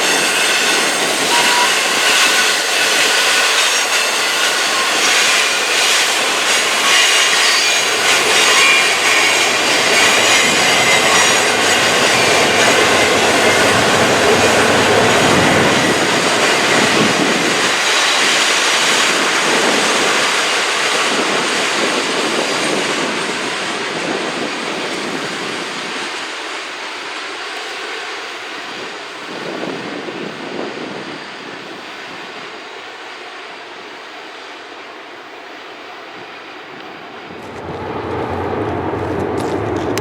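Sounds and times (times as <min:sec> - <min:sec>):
train cars clattering past: 0:00.0 - 0:24.8, 0:37.2 - 0:40.0
steel wheels squealing on rail: 0:00.0 - 0:26.1.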